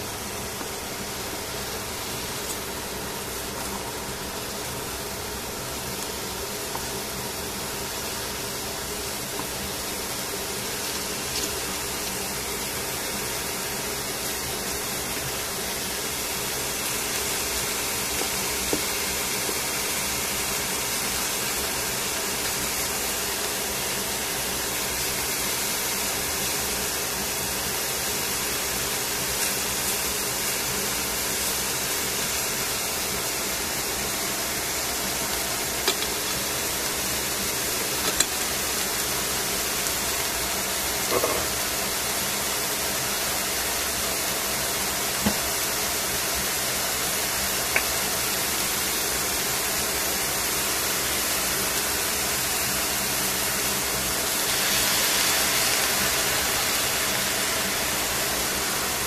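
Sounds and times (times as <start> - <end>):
mushrooms sizzling in a pan: 0.0 - 59.0.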